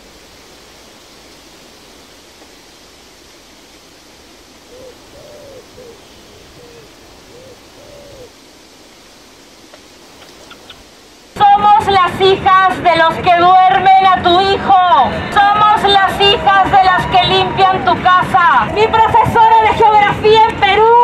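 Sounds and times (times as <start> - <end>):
steady forest hiss: 0.0 - 21.0
bird hooting: 4.6 - 8.4, 10.1 - 10.9.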